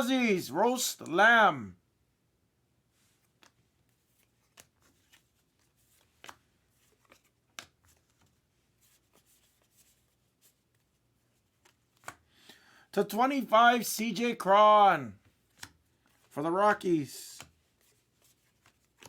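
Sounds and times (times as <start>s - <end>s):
trading cards clicking and sliding: 3.1s - 10.0s, 17.3s - 19.0s.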